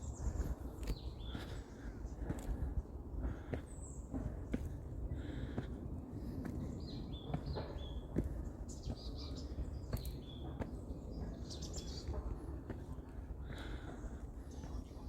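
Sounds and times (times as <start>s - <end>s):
low outdoor rumble: 0.0s - 15.0s
wild birds chirping: 0.0s - 15.0s.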